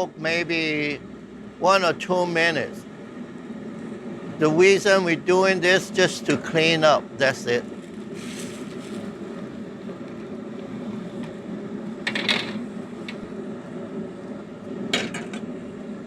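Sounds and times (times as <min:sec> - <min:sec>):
stovetop cooking hum: 0:00.0 - 0:16.0.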